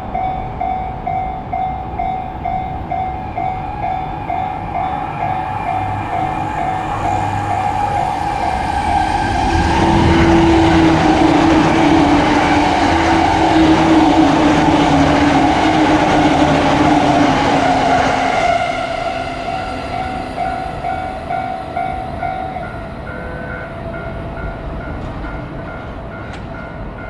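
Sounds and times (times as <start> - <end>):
electric train passing: 0.0 - 27.0
level-crossing warning bell: 0.0 - 27.0
train motor whine: 2.3 - 23.6.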